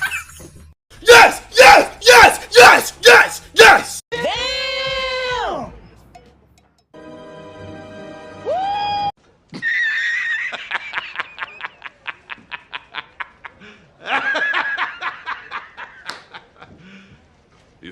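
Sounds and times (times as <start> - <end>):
high-pitched squeaky laughter: 0.0 - 0.7.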